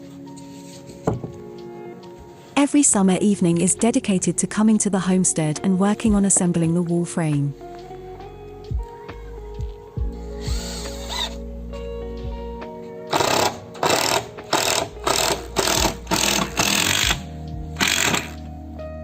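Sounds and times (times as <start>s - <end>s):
background music: 0.0s - 19.0s
power drill bursts: 10.4s - 11.4s, 13.1s - 18.4s.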